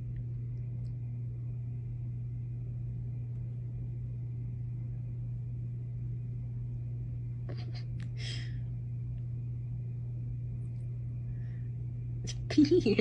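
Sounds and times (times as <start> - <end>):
faint high whine: 0.0 - 13.0
steady low hum: 0.0 - 13.0.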